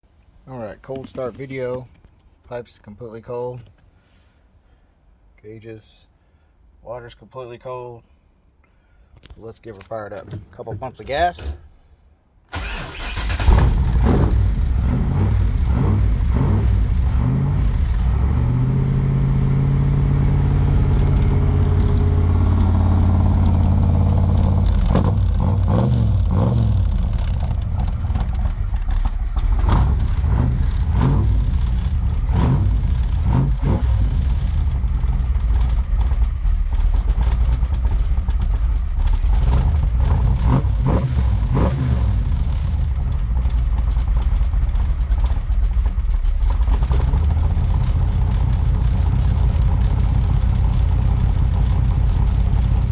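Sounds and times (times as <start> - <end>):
car engine idling and revving: 12.5 - 52.9.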